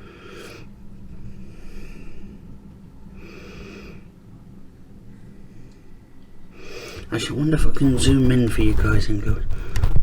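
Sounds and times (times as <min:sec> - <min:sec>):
man breathing close to microphone: 0:00.0 - 0:04.3, 0:05.2 - 0:07.1, 0:09.4 - 0:10.0
steady low hum: 0:00.0 - 0:10.0.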